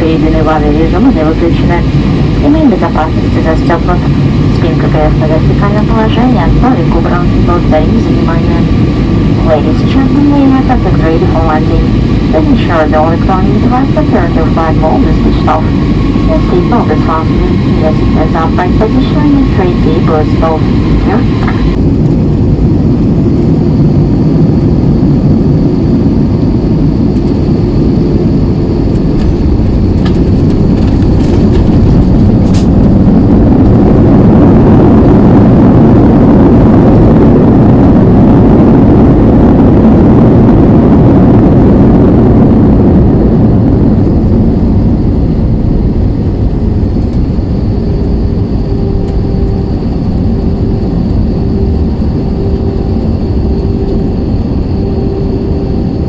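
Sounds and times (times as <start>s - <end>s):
jet engines roaring in cabin: 0.0s - 56.0s.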